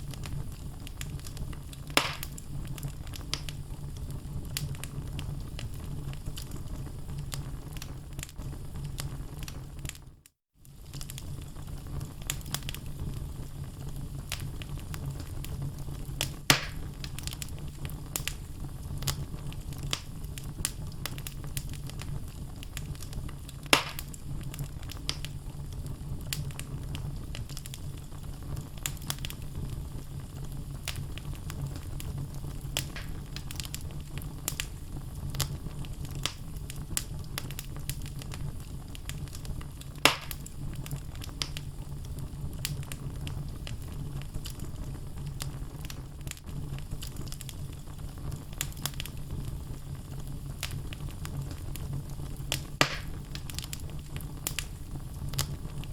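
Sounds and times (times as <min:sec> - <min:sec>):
fire rumbling: 0:00.0 - 0:55.9
wood crackling: 0:00.1 - 0:10.0, 0:10.7 - 0:55.9
wood popping: 0:02.0 - 0:02.4, 0:16.5 - 0:16.9, 0:23.8 - 0:24.2, 0:32.8 - 0:33.7, 0:52.5 - 0:53.7.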